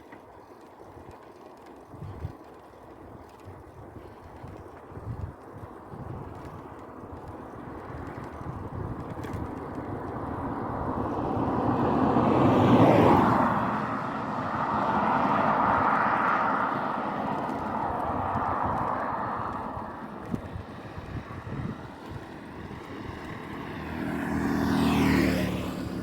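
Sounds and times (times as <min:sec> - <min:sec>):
road noise rushing: 0:06.5 - 0:26.0
motor vehicle passing by: 0:07.2 - 0:26.0.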